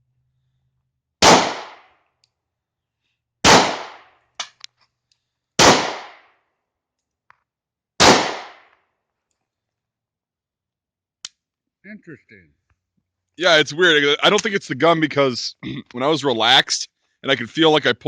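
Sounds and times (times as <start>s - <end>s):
pistol shots: 1.2s - 1.9s, 3.4s - 4.6s, 5.6s - 6.3s, 8.0s - 8.8s.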